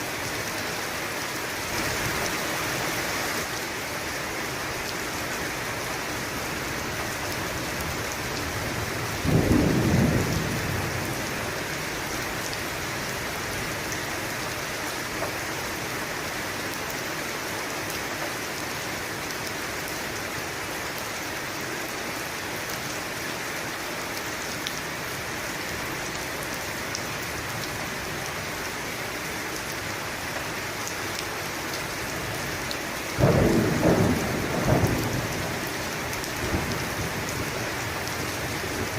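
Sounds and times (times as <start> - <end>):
steady rain falling: 0.0 - 38.9
thunder: 9.2 - 11.1, 33.2 - 35.6.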